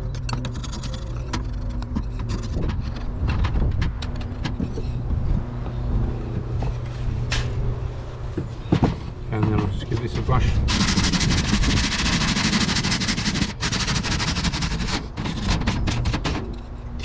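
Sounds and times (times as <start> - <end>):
steady low hum: 0.0 - 17.0
metal tool scraping wood: 10.7 - 17.0.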